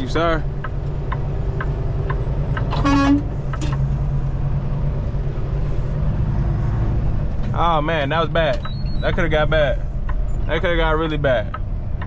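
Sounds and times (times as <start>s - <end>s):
diesel truck engine running: 0.0s - 12.0s
vehicle horn toot: 2.7s - 3.3s.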